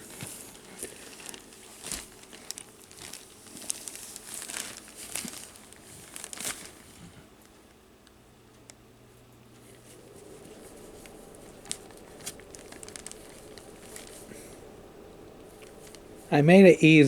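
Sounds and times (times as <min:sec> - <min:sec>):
wrapping paper crinkling: 0:00.1 - 0:07.0, 0:09.9 - 0:16.7.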